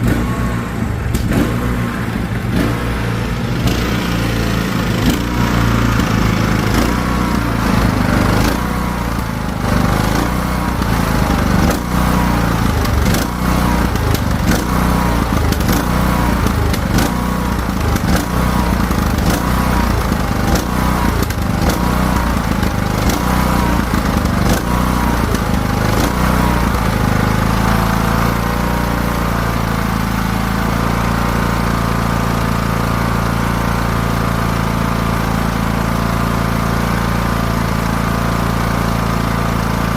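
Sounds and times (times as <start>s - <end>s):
mower engine surging: 0.0s - 39.9s.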